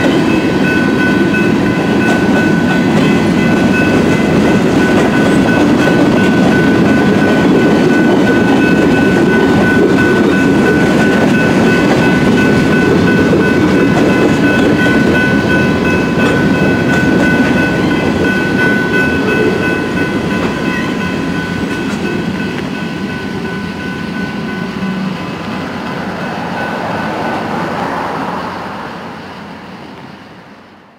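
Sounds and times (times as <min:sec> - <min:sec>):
railroad crossing bell ringing: 0:00.0 - 0:30.4
freight train rolling on rails: 0:00.0 - 0:30.9.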